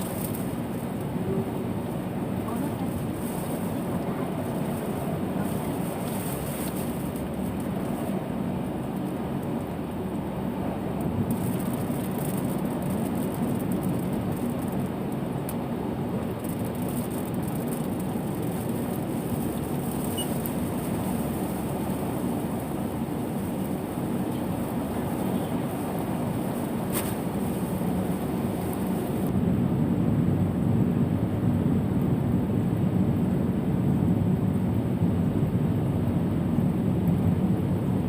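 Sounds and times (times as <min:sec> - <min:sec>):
tyres on wet road: 0:00.0 - 0:29.3
rain and spray hiss: 0:00.0 - 0:38.0.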